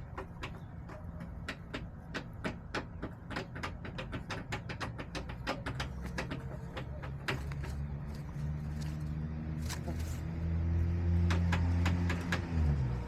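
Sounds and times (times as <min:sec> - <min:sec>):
chickens pecking hard surface: 0:00.0 - 0:10.3.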